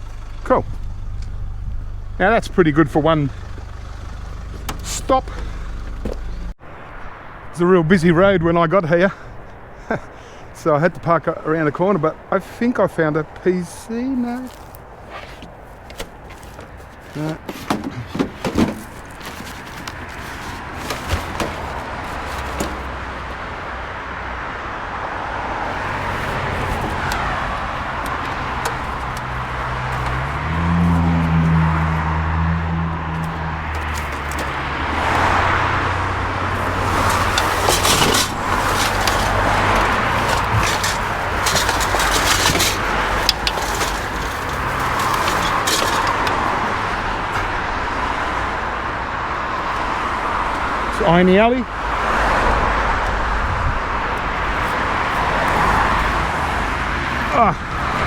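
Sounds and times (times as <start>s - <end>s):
car engine running: 0.0s - 6.6s, 15.3s - 23.4s, 25.6s - 47.1s
road noise: 0.0s - 58.0s
sharp clicks and knocks: 15.4s - 23.0s, 33.2s - 34.7s, 36.6s - 46.8s.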